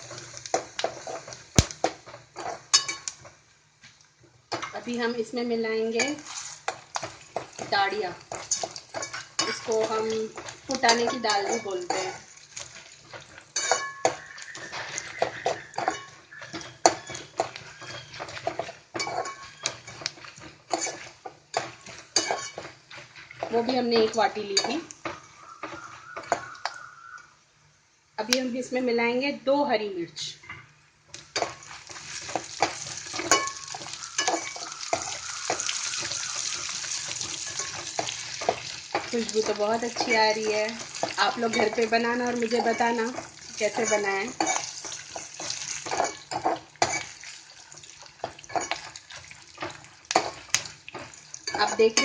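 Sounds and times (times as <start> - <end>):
food sizzling in hot oil: 0.0 - 27.1, 31.0 - 52.0
frying: 0.0 - 28.9, 30.6 - 52.0
spoon clinking against pan: 2.4 - 3.1, 13.6 - 14.3, 15.2 - 18.2, 32.6 - 35.7, 36.9 - 47.2, 48.2 - 49.0, 49.6 - 52.0
metal spoon scraping a pan: 5.9 - 25.0, 31.2 - 47.3, 48.2 - 52.0.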